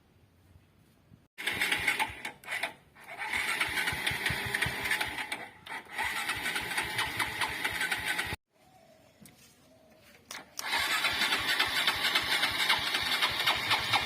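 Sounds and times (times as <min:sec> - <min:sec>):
small motorcycle engine running: 0:01.4 - 0:08.4, 0:10.6 - 0:14.0.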